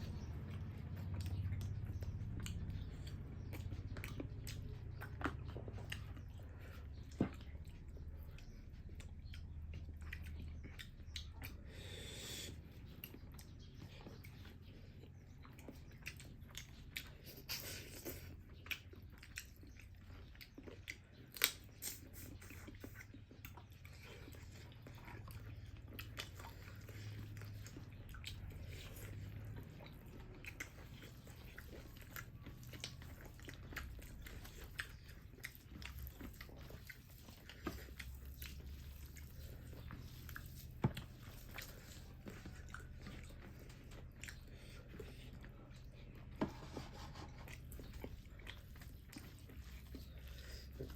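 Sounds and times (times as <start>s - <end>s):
people chewing and biting food: 0.0s - 50.9s
steady low hum: 0.0s - 50.9s
crunchy clicks and mouth sounds: 12.4s - 46.4s.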